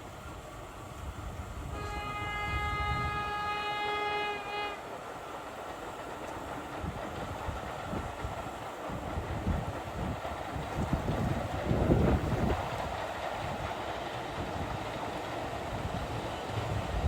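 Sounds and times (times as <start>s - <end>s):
train rumble and rail noise: 0.0s - 17.0s
locomotive whistle: 1.7s - 4.8s.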